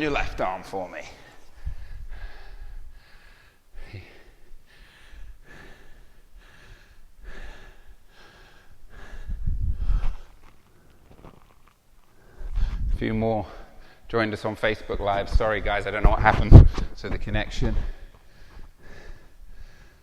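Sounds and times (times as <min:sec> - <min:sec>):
man breathing hard: 0:01.2 - 0:11.3, 0:12.1 - 0:14.1, 0:17.8 - 0:20.0.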